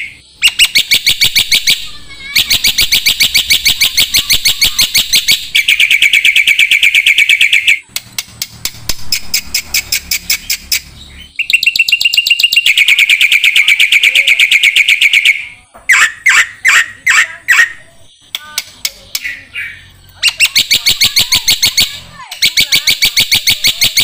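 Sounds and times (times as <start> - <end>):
songbird chirping rapidly: 0.0 - 24.0
bird clicking notes: 18.2 - 19.3.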